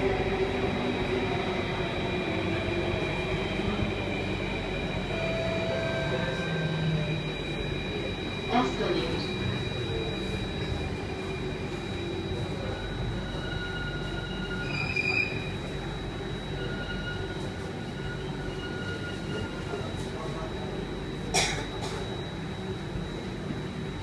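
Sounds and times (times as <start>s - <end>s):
metro car hum and whine: 0.0s - 24.0s
short tone: 5.1s - 7.5s.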